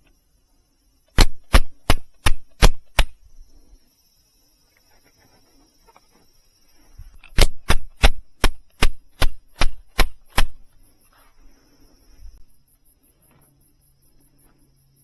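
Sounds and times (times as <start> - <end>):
hammer striking tent peg: 1.1 - 3.2, 7.3 - 10.6.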